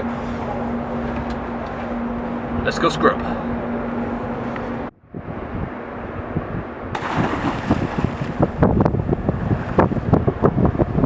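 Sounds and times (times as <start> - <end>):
wind buffeting microphone: 5.1 - 11.0
crackling and splashing water: 7.0 - 8.6.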